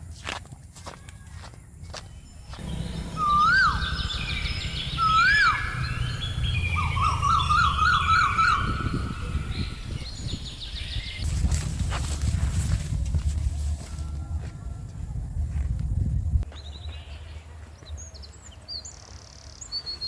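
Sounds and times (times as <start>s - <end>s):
bird warbling trill: 2.2s - 11.2s
steady low rumble: 2.2s - 16.5s
bird whistles: 2.6s - 11.2s.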